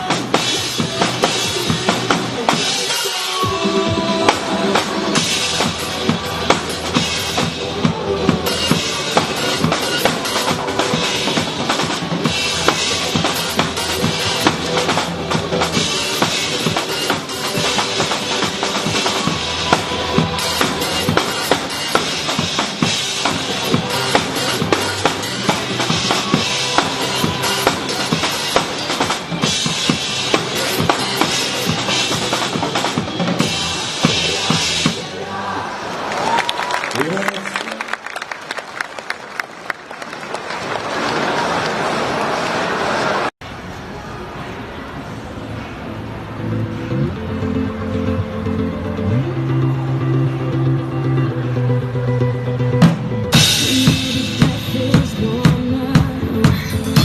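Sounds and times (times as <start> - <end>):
drum kit playing fast beat: 0.0 - 35.1, 52.8 - 57.0
recorded backing music: 0.0 - 35.1, 46.3 - 57.0
cymbals crashing: 8.5 - 35.1.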